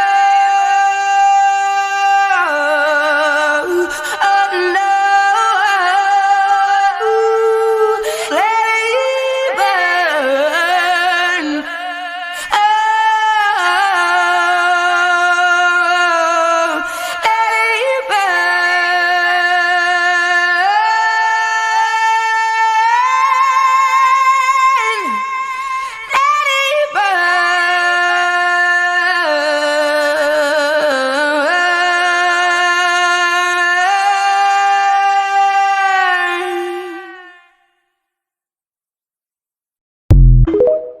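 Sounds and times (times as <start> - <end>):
woman singing unaccompanied: 0.0 - 37.5.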